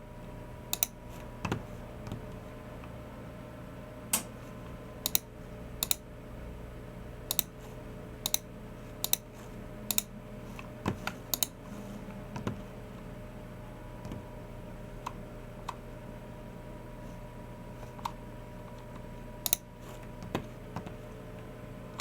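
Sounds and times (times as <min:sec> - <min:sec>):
faint steady hum: 0:00.0 - 0:22.0
keyboard and mouse clicks: 0:00.7 - 0:02.2, 0:05.0 - 0:06.0, 0:07.3 - 0:07.5, 0:09.9 - 0:10.1, 0:10.9 - 0:11.6, 0:19.5 - 0:20.4.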